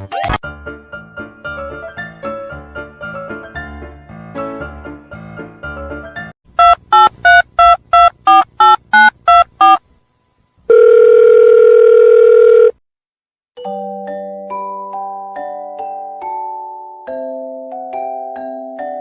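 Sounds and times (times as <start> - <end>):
piano music: 0.4 - 6.3
steady phone tone: 6.6 - 9.8, 10.7 - 12.8
telephone dialing beeps: 6.6 - 9.8, 10.7 - 12.7
bell-like mallet music: 13.6 - 19.0.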